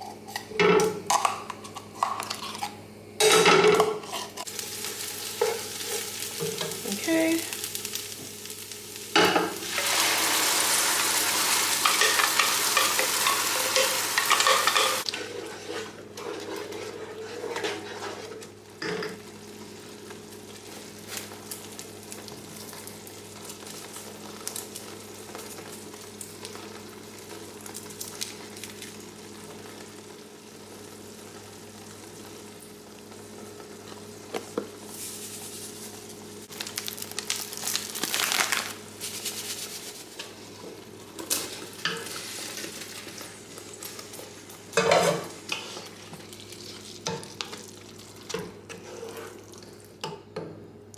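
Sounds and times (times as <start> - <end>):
food sizzling in a frying pan: 0.0 - 50.1
utensil scraping: 11.8 - 18.4.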